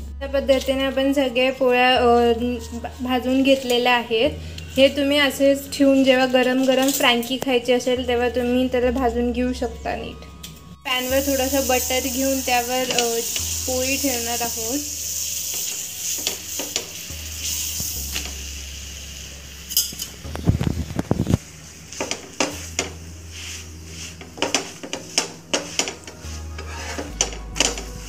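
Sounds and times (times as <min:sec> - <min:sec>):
flatbread sizzling in butter: 0:10.9 - 0:28.0
spatula scraping on griddle: 0:21.7 - 0:28.0.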